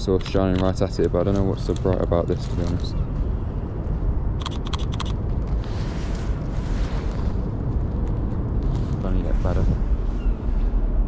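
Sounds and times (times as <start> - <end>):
wind buffeting microphone: 0.0 - 11.0
sharp clicks: 4.4 - 5.2.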